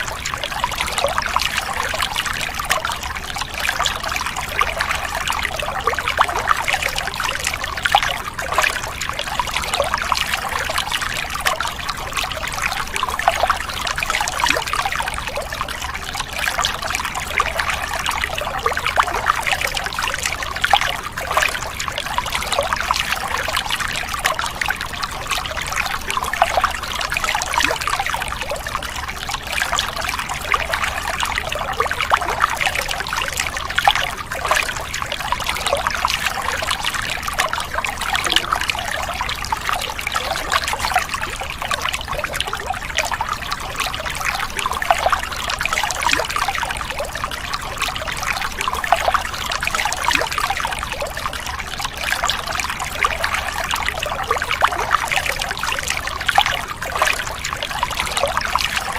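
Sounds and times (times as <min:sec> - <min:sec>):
running water trickling and splashing: 0:00.0 - 0:58.9.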